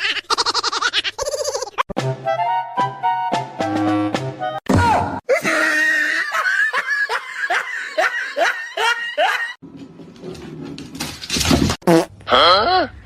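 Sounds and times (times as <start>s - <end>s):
person laughing hard: 5.3s - 9.6s.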